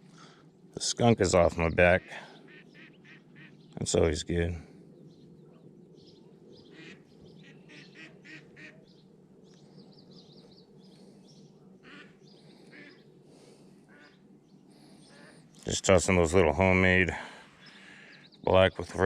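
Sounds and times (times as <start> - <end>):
birds chirping: 0.0 - 19.0
low background hum: 0.0 - 19.0
quacking bird calls: 1.9 - 3.8, 6.6 - 9.0, 11.8 - 14.2, 17.5 - 18.4.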